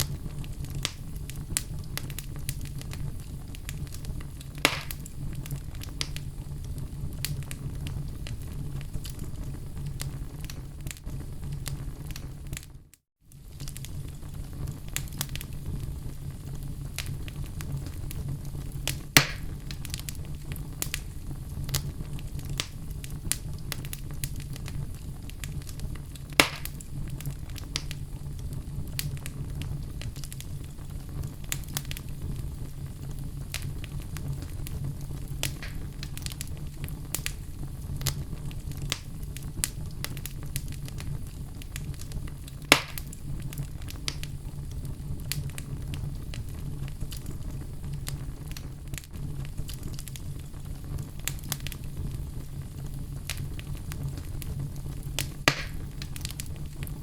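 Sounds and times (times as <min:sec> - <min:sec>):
loud fire snaps: 0:00.0 - 0:57.0
low rumble of fire: 0:00.0 - 0:57.0
wood fire crackling: 0:00.0 - 0:57.0.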